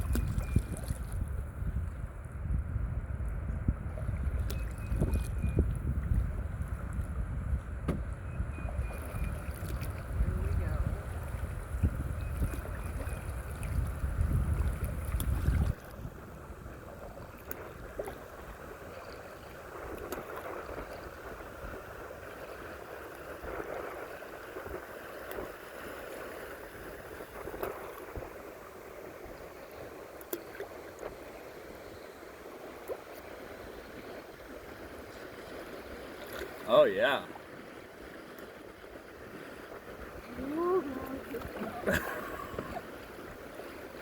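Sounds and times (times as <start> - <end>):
light knocks on kayak: 7.8 - 8.1
rushing river water: 12.4 - 44.0.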